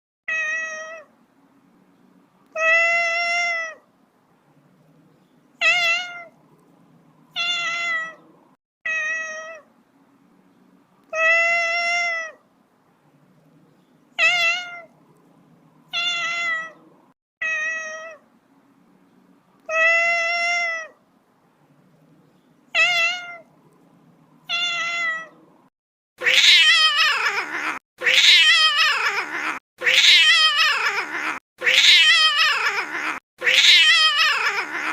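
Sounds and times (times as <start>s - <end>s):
kitten meowing: 26.2s - 34.9s.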